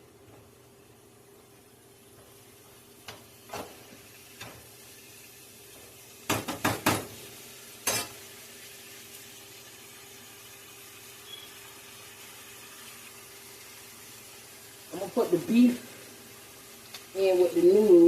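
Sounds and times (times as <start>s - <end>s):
metal utensils clanking on pots: 7.8s - 8.2s.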